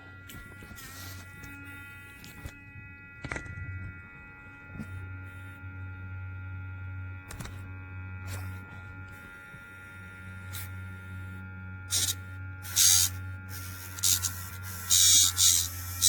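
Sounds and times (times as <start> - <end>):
nail grinder motor humming: 8.2 - 16.0.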